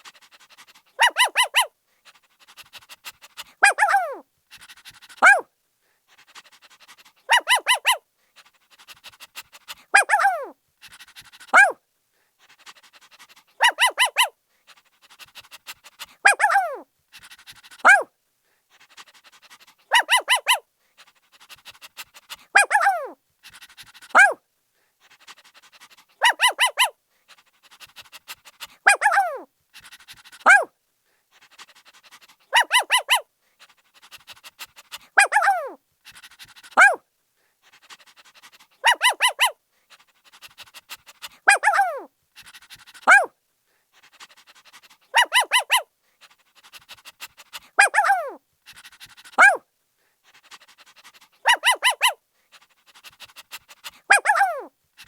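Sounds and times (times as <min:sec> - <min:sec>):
puppy barking and yelping: 0:00.0 - 0:01.8, 0:02.5 - 0:05.5, 0:06.4 - 0:08.0, 0:09.6 - 0:11.8, 0:13.2 - 0:14.4, 0:15.1 - 0:18.1, 0:18.9 - 0:24.4, 0:25.3 - 0:27.0, 0:27.7 - 0:30.7, 0:31.6 - 0:33.3, 0:34.0 - 0:37.0, 0:37.8 - 0:39.6, 0:40.4 - 0:43.3, 0:44.6 - 0:45.9, 0:46.7 - 0:49.6, 0:50.6 - 0:52.2, 0:53.0 - 0:54.7.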